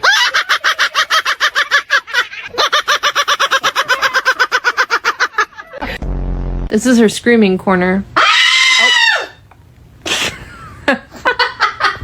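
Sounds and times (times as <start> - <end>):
parrot calling rapidly: 8.2 - 9.4.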